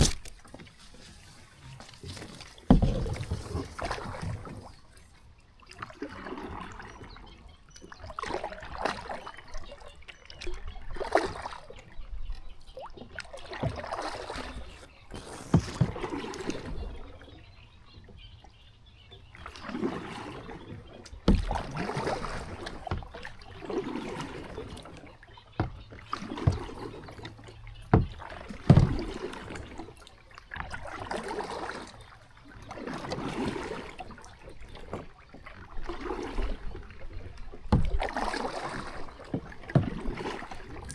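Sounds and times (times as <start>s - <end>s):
kayak paddle splashing: 0.0s - 40.9s.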